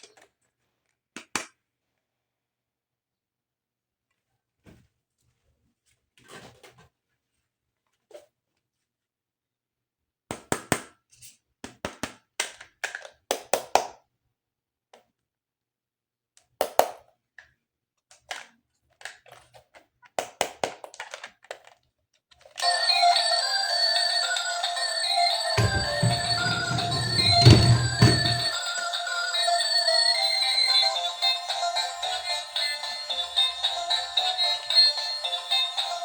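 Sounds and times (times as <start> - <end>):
music with held notes: 25.6 - 28.5.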